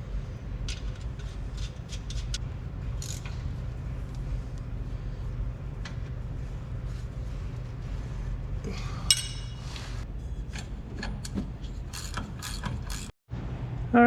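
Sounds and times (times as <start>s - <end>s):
hand tools clicking and scraping: 10.5s - 13.2s.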